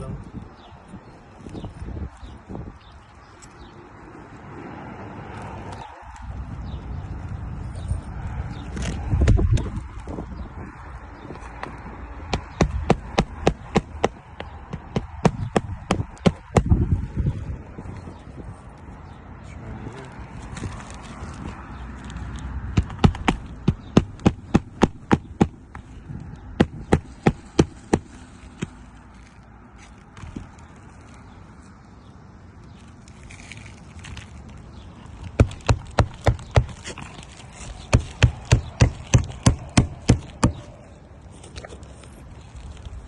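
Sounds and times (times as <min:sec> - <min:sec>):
nails driven into shingles: 0:12.3 - 0:16.8, 0:22.7 - 0:28.8, 0:35.2 - 0:37.1, 0:37.8 - 0:40.7.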